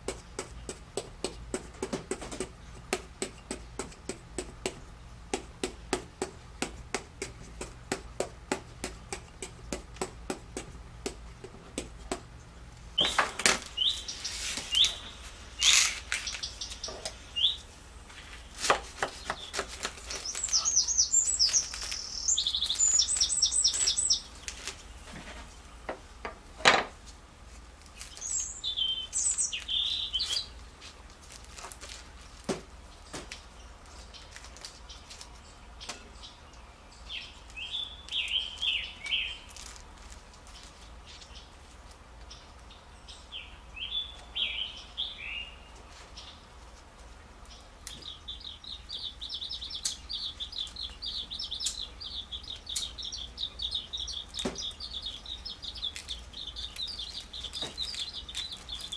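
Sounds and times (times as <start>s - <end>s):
bird chirping and trilling: 13.0s - 17.7s, 19.2s - 24.5s, 28.0s - 30.6s, 34.9s - 39.6s, 42.3s - 46.4s, 47.5s - 58.9s.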